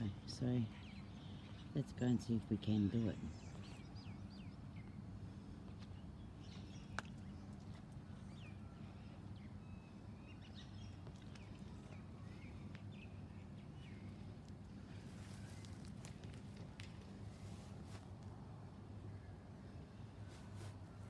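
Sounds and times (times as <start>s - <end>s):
birds chirping: 0.0s - 16.2s.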